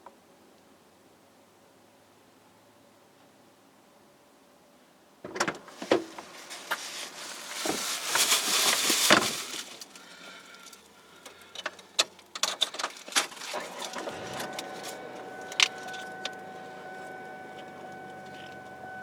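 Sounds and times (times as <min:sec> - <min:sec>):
handling rustling: 0:05.5 - 0:10.9.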